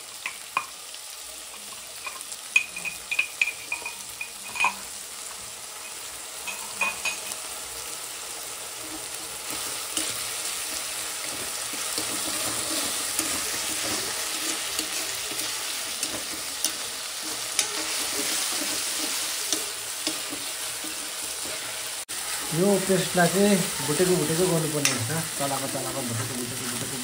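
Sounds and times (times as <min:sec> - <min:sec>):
chicken paste sizzling in oil: 0:00.0 - 0:27.0
steel spatula scraping pan: 0:08.8 - 0:22.0.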